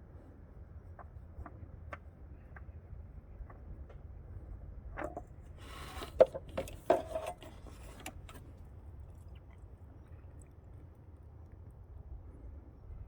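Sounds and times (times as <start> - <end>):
short scraping noises: 5.6 - 8.5.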